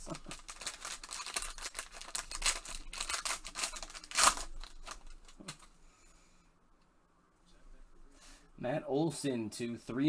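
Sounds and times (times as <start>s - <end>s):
packaging tearing and crackling: 0.0s - 5.7s.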